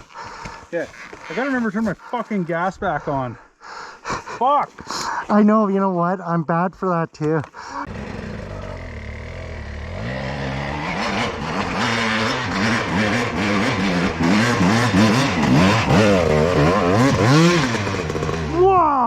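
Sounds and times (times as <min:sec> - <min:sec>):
dirt bike engine revving: 0:07.8 - 0:18.8.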